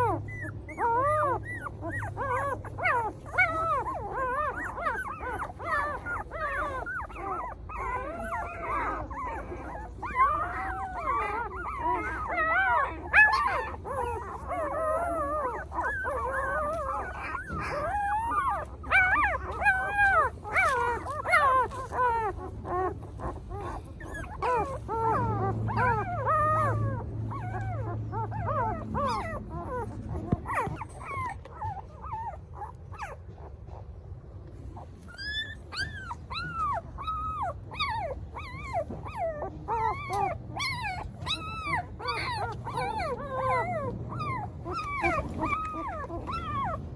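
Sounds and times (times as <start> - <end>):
puppies crying: 0.0 - 46.9.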